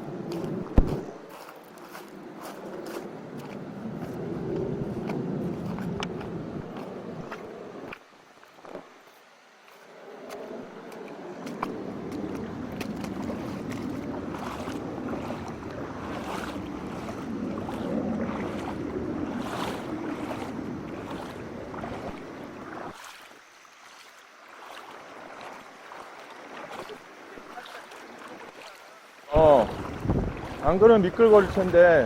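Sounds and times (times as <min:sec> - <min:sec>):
wind rumble on microphone: 0:00.0 - 0:08.0, 0:10.0 - 0:23.0, 0:29.3 - 0:32.0
water splashing in stream: 0:00.0 - 0:32.0.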